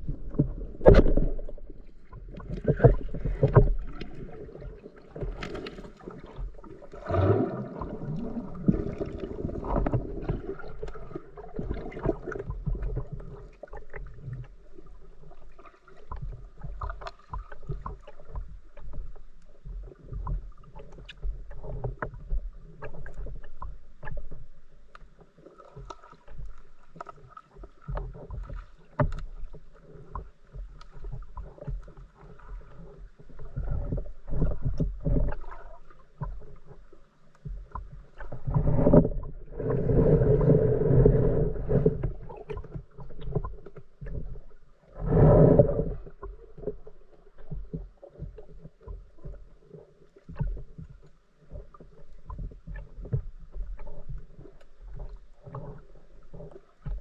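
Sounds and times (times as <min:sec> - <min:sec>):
bubbling water: 0:00.0 - 0:14.4
water sloshing and splashing: 0:00.0 - 0:57.0.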